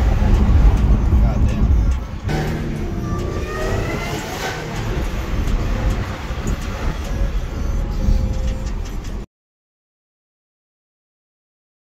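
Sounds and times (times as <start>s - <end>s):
car engine whine and drone: 0.0s - 9.3s.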